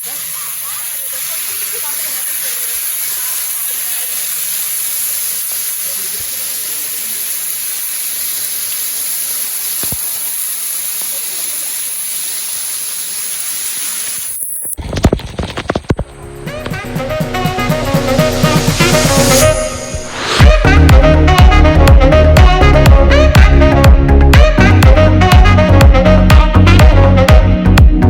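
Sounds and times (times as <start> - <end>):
faint voices: 0.0 - 14.3
waterfall rushing: 0.0 - 14.4.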